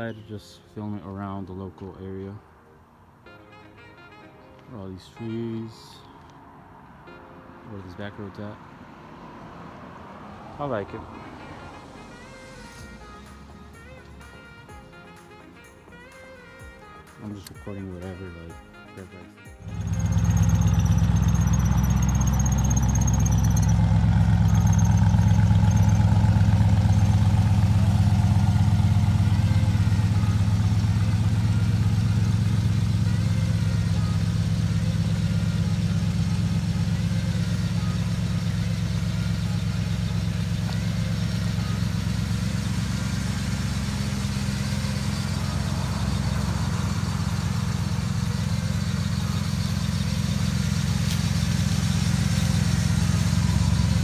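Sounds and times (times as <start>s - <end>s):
truck engine idling: 19.6s - 54.0s.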